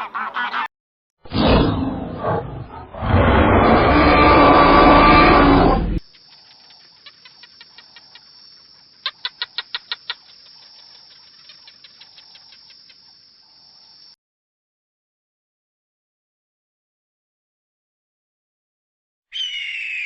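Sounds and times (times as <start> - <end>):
animal roar: 1.3 - 6.0
rapid chirps: 6.0 - 13.2.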